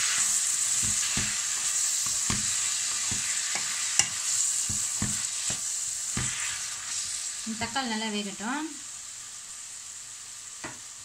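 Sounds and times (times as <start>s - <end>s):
spatula scraping a pan: 0.0s - 7.3s
vegetables sizzling in oil: 0.0s - 11.0s.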